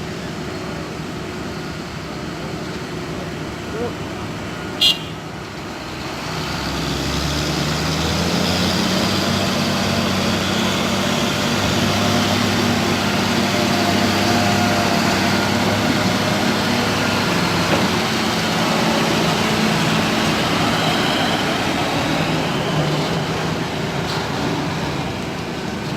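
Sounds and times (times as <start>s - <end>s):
heavy diesel engine running hard: 0.0s - 25.9s.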